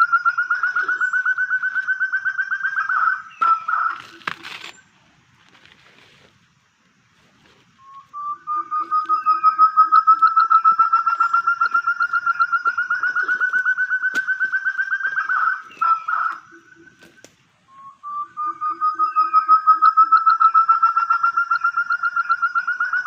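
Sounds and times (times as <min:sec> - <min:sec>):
quail calling in fast runs: 0:00.0 - 0:04.4, 0:08.5 - 0:17.2
soft low hoots: 0:00.0 - 0:04.4, 0:07.7 - 0:23.0.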